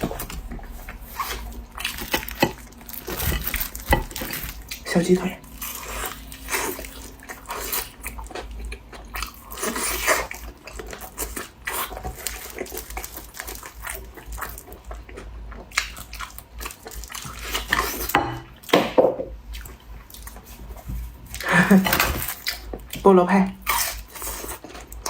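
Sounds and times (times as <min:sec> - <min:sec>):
biting and chewing chicken: 0:00.0 - 0:18.8, 0:19.5 - 0:23.0, 0:23.6 - 0:25.0.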